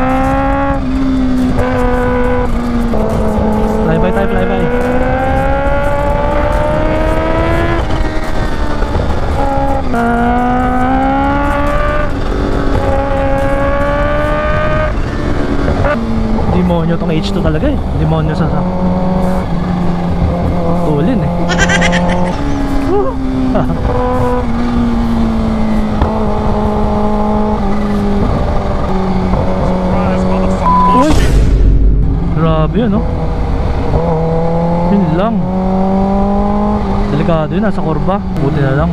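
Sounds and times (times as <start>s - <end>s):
motorcycle engine running: 0.0s - 16.6s
motorcycle engine accelerating: 0.0s - 38.9s
heavy wind rush: 21.3s - 23.9s.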